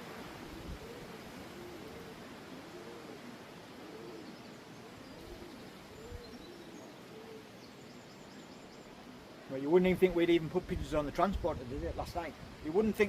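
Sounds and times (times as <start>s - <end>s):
pigeons cooing: 0.0s - 8.1s
wind hiss: 0.0s - 13.0s.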